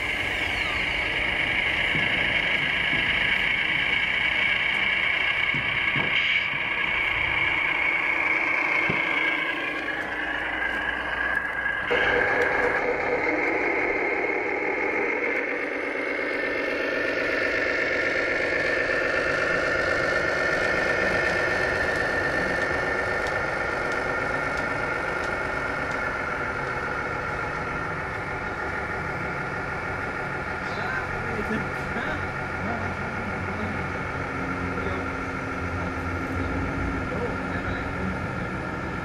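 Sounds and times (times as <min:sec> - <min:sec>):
model trucks running: 0:00.0 - 0:39.0.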